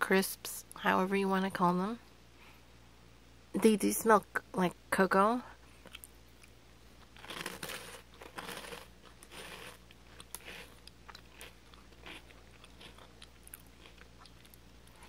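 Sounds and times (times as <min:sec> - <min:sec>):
crunching and chewing puffs: 0:05.7 - 0:15.0.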